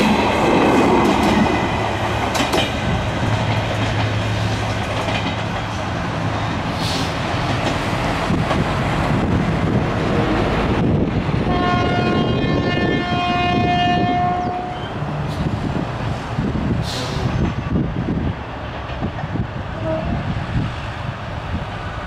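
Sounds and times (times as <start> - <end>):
train wheels clacking on rails: 0.0 - 10.0
brief hiss: 6.8 - 7.2
locomotive air horn: 11.5 - 14.9, 19.8 - 20.2.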